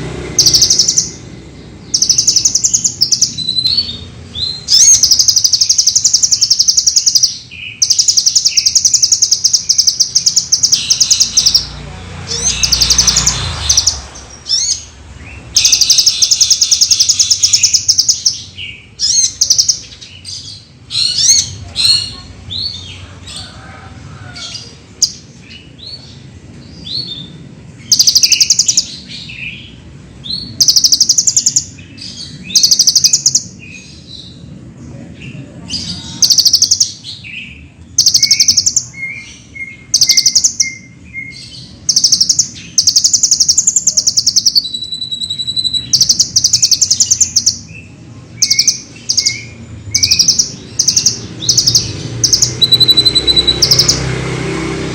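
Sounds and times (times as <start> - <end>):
sunbird singing fast trills: 0.0 - 23.0, 24.5 - 34.6, 35.2 - 54.6
sunbird chirps and twitters: 0.0 - 23.6, 24.5 - 54.5.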